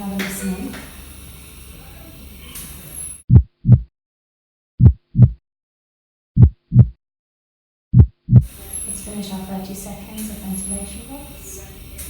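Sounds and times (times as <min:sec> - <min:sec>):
heartbeat through stethoscope: 0:03.3 - 0:03.9, 0:04.8 - 0:05.4, 0:06.4 - 0:07.0, 0:07.9 - 0:08.6.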